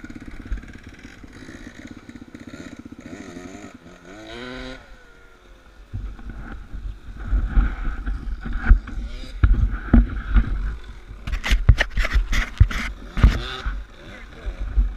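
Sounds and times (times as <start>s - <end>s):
motorcycle engine revving: 0.0s - 14.9s
low rumbling and buffeting: 4.5s - 14.9s.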